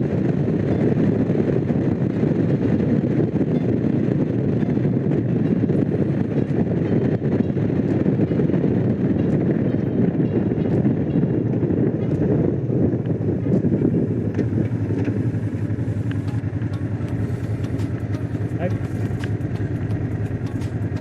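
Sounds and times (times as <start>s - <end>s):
wind rushing over microphone: 0.0s - 21.0s
motorcycle engine cruising: 12.1s - 21.0s.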